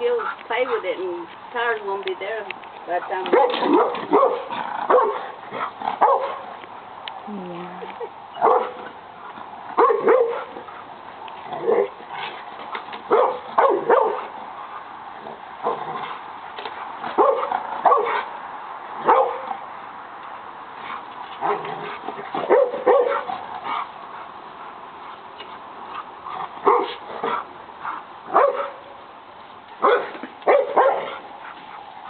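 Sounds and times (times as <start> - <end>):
dog barking: 3.3 - 5.3, 6.0 - 6.4, 8.4 - 8.8, 9.8 - 10.5, 11.6 - 11.9, 13.1 - 14.3, 17.2 - 18.3, 19.0 - 19.5, 22.4 - 23.3, 26.6 - 27.0, 28.3 - 28.8, 29.8 - 31.2.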